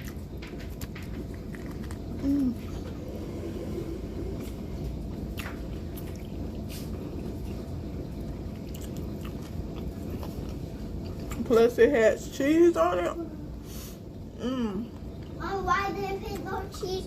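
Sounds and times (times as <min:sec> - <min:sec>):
person chewing: 0:00.0 - 0:03.0, 0:04.2 - 0:11.5
steady low rumble: 0:00.0 - 0:17.0.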